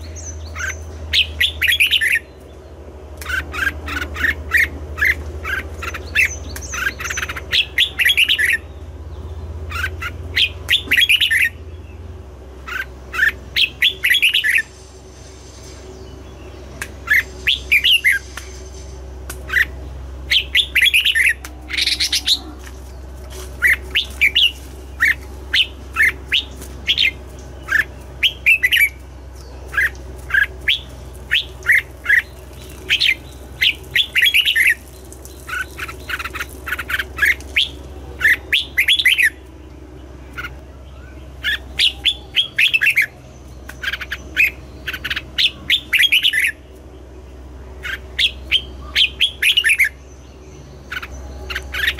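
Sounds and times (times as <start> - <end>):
steady low hum: 0.0 - 51.9
bird singing whistled notes: 9.8 - 11.6, 12.7 - 14.7, 16.0 - 18.6, 19.5 - 22.4, 23.6 - 39.4, 40.8 - 46.6, 47.8 - 51.9.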